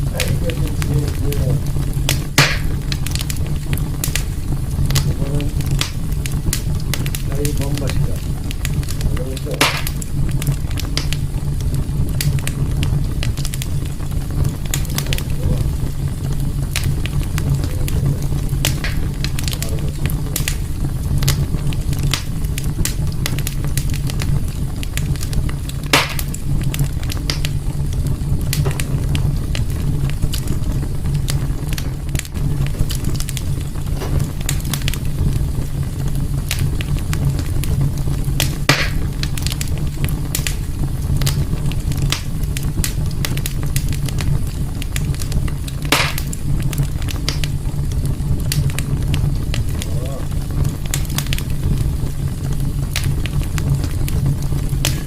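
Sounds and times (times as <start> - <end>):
low fire rumble: 0.0 - 55.0
wood fire crackling: 0.0 - 55.0
sharp pops: 0.1 - 11.2, 12.1 - 24.2, 24.8 - 27.6, 28.4 - 29.3, 30.3 - 35.2, 36.5 - 39.7, 45.0 - 47.6, 48.4 - 52.0, 52.9 - 55.0.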